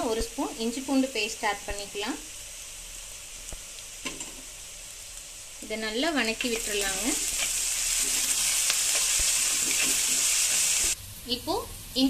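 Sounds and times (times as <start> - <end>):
food sizzling in hot oil: 0.0 - 12.0
spatula scraping pan: 6.5 - 11.0.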